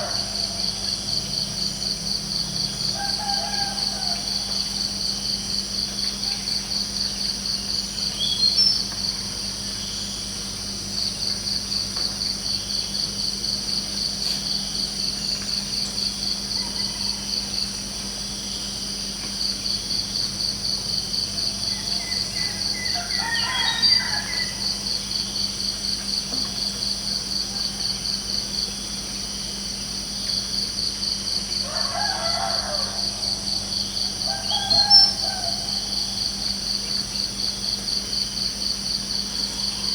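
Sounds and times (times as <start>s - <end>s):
rooster crowing: 0.0s - 1.2s, 2.6s - 5.2s, 16.3s - 17.7s, 21.4s - 25.1s, 31.5s - 36.7s
crickets chirping: 0.0s - 39.9s.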